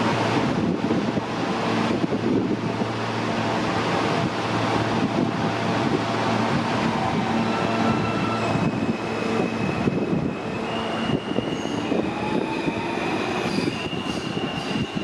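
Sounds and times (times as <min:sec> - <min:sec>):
subway train rumble and clatter: 0:00.0 - 0:15.0
high wheel squeal: 0:07.5 - 0:15.0.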